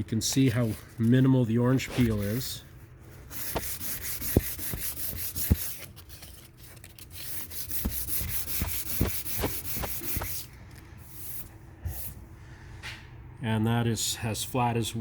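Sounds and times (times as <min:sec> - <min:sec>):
hand sanding car panel: 0:01.9 - 0:02.5, 0:03.2 - 0:06.0, 0:06.9 - 0:10.5.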